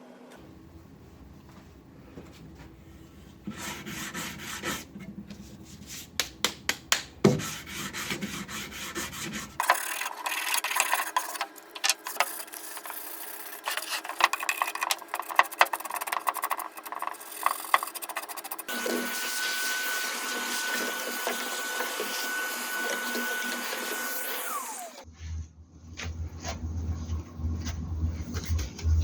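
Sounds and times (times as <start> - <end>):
sanding wood by hand: 3.5 - 4.9, 7.3 - 9.7, 12.1 - 24.8.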